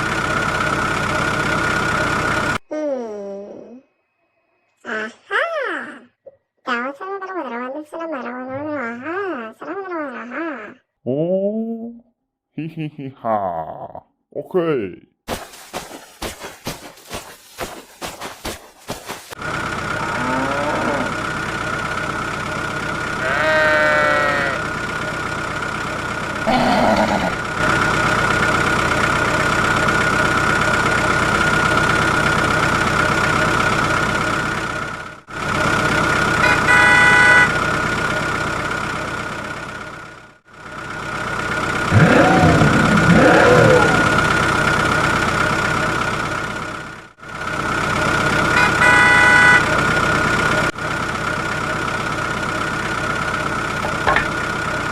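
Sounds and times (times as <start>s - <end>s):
truck engine running with whine: 0.0s - 2.6s, 15.8s - 54.9s
horn toots: 23.2s - 24.8s, 36.4s - 37.7s, 48.5s - 49.8s.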